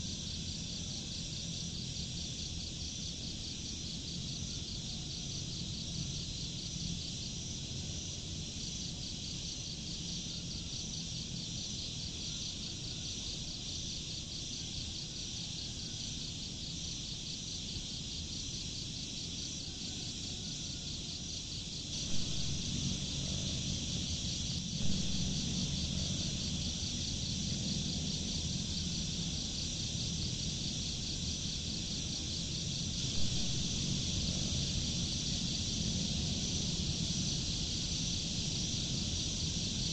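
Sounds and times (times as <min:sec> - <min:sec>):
insects chirping trill: 0:00.0 - 0:39.9
low rumble: 0:22.0 - 0:38.8.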